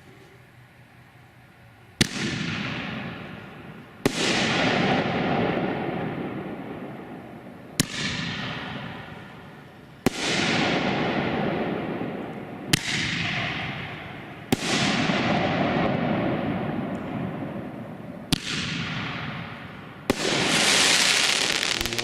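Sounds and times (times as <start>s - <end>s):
fireworks cake sharp reports: 20.1s - 22.0s.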